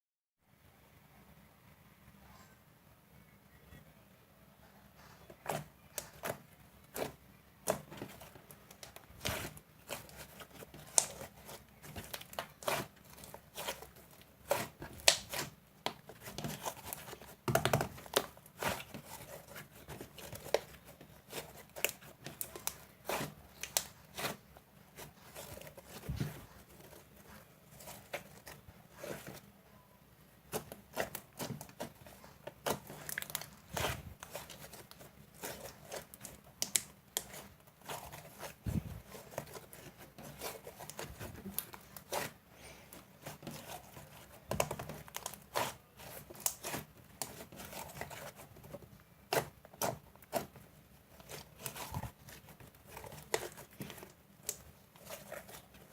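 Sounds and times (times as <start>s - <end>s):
slime squished by hand: 5.4s - 29.4s.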